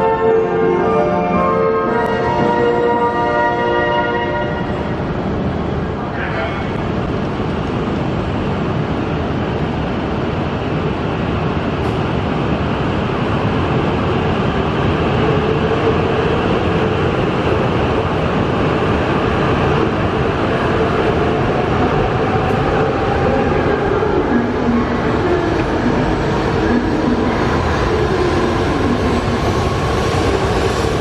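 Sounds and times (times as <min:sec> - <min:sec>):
train running noise: 0:00.0 - 0:31.0.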